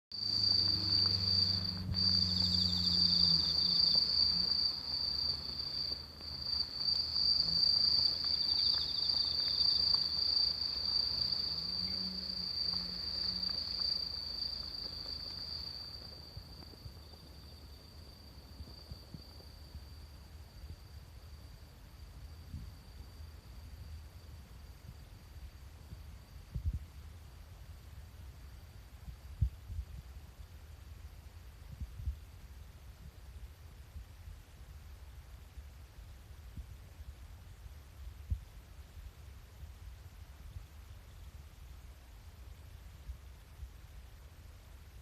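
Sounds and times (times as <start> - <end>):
low hum: 0.2 - 20.8
insects trilling: 0.2 - 25.5.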